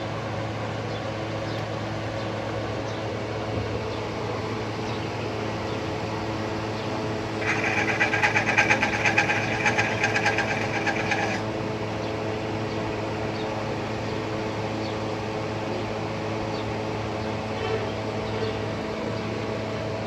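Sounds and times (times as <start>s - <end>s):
steady machine hum: 0.0s - 20.0s
rapid mechanical rattle: 7.0s - 11.5s.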